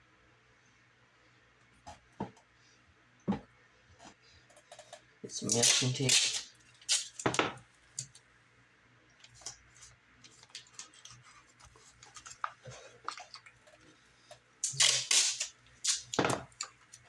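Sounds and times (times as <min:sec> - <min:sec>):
tape tearing off roll: 0:05.4 - 0:07.6, 0:14.6 - 0:16.6.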